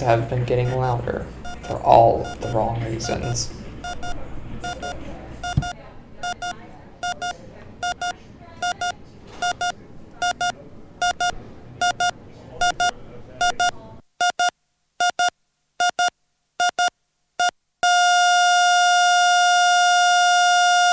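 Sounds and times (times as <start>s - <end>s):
flatline alarm steady tone: 0.0s - 13.8s, 17.8s - 20.9s
low room murmur: 0.0s - 14.0s
heart monitor double beeps: 0.0s - 20.9s.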